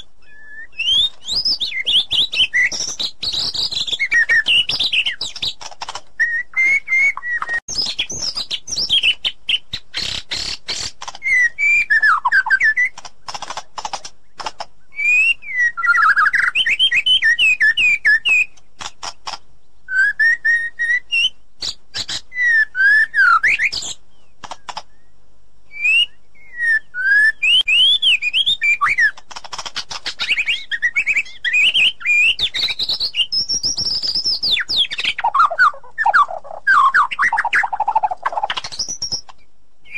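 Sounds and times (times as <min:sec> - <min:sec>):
bird whistled song: 0:00.0 - 0:05.6, 0:06.2 - 0:13.0, 0:14.2 - 0:18.6, 0:19.8 - 0:24.3, 0:24.9 - 0:29.2, 0:29.8 - 0:39.9
bird sharp clicking notes: 0:00.9 - 0:14.7, 0:16.1 - 0:19.5, 0:23.4 - 0:24.9, 0:28.2 - 0:39.4.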